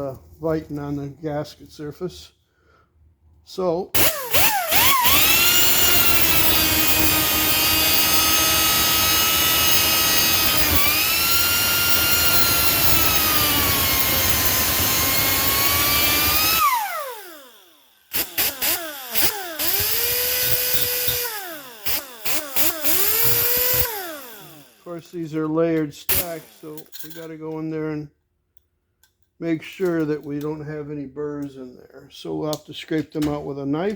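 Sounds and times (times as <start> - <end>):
cut-off wheel cutting metal: 4.0 - 25.0, 26.1 - 27.1.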